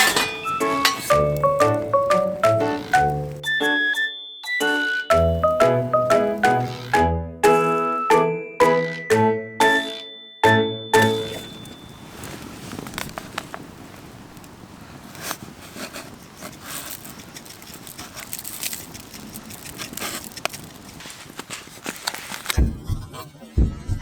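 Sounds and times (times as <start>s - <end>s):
wood fire crackling and popping: 0.0s - 3.6s, 11.0s - 22.6s.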